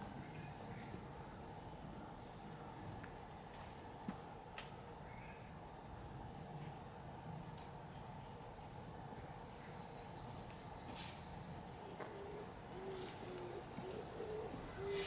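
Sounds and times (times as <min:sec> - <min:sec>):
short hissing sounds: 0:10.9 - 0:11.3
dove cooing: 0:11.8 - 0:15.0.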